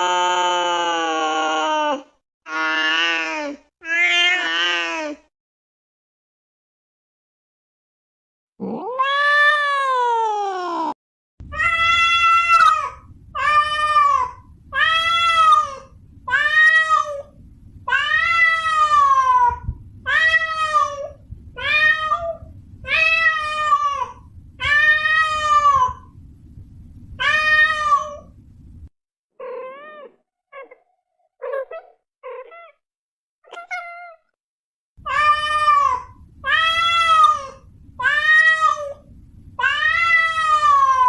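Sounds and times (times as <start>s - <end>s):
cat meowing: 8.8s - 10.6s, 11.5s - 17.3s, 27.2s - 28.3s, 29.4s - 30.8s, 33.5s - 34.2s
faint low hiss: 11.4s - 28.9s.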